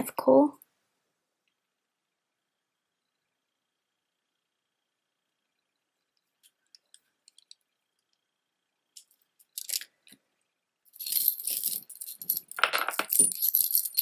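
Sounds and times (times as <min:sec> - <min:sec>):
stone beads clicking and rattling: 0:09.0 - 0:09.9, 0:10.9 - 0:14.0.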